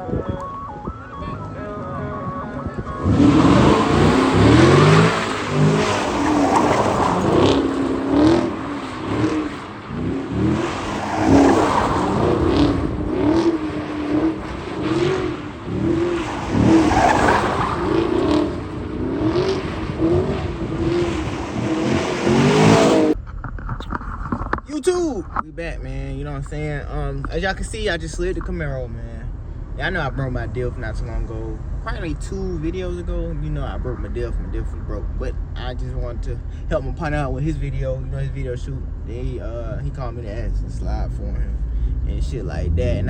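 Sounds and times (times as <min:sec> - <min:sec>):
car engine revving: 0:00.0 - 0:23.2, 0:24.7 - 0:43.0
tires skidding and squealing: 0:01.5 - 0:23.2.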